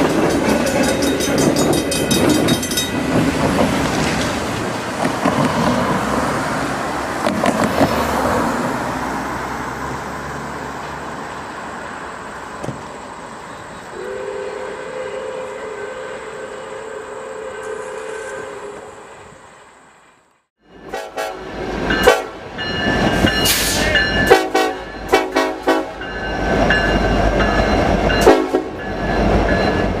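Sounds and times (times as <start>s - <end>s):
moving train rumble: 0.0s - 30.0s
train whistle: 13.9s - 19.4s, 20.9s - 22.4s, 23.5s - 26.0s, 28.2s - 28.8s.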